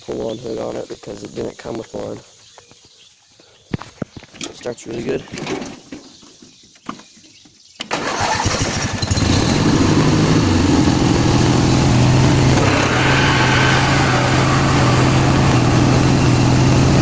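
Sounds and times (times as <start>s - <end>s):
starter cranking engine: 7.8s - 17.0s
mower engine running: 7.9s - 17.0s.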